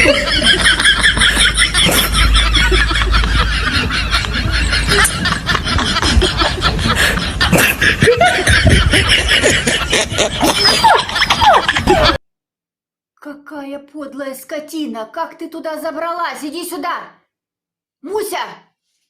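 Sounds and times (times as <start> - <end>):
person laughing in breathy snickers: 0.0 - 12.2.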